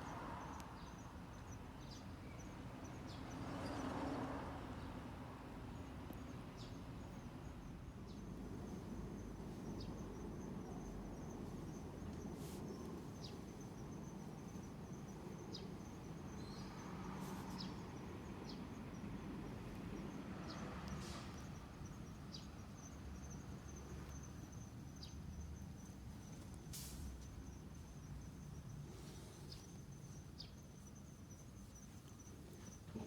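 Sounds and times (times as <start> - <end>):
crickets trilling: 6.6 - 33.0.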